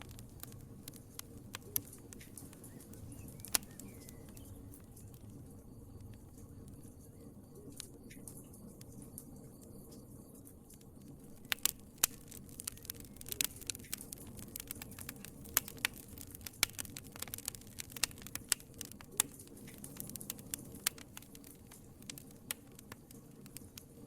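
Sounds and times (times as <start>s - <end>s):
low rumble of burning: 0.0s - 24.0s
wood fire crackling: 0.0s - 24.0s.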